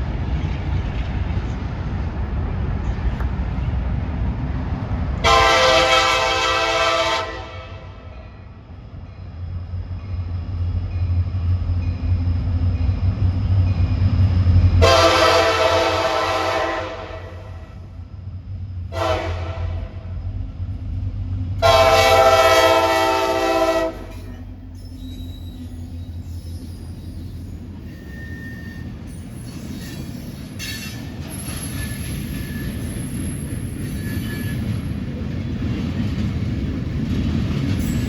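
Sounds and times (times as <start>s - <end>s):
locomotive rumble: 0.0s - 38.0s
locomotive air horn: 5.2s - 8.1s, 14.8s - 17.7s, 18.9s - 20.1s, 21.6s - 24.4s.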